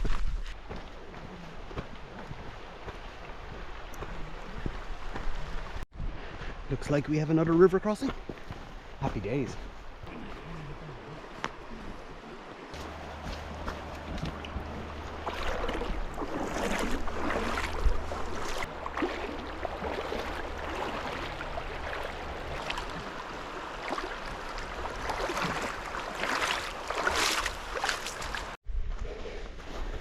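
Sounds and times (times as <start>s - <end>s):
river water rushing and splashing: 8.7s - 28.6s.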